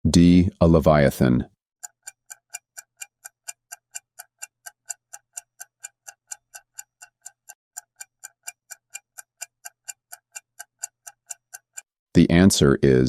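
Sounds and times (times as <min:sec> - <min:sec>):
clock ticking: 0:01.8 - 0:11.9.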